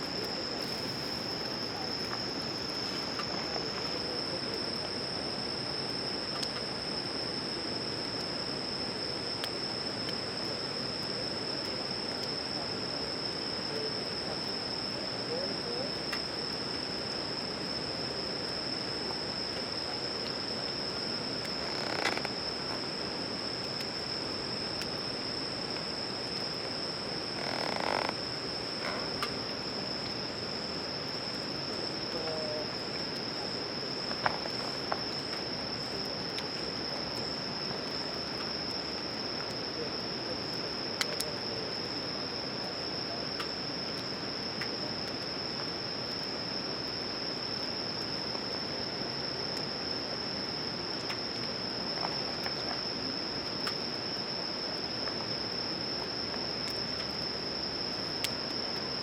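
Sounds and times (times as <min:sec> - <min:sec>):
crickets trilling: 0:00.0 - 0:59.0.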